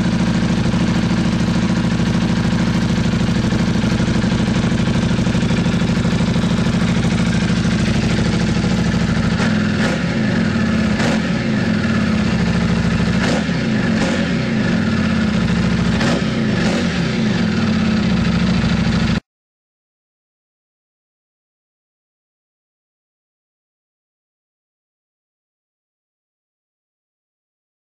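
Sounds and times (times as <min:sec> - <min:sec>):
motorcycle engine idling and revving: 0:00.0 - 0:19.2.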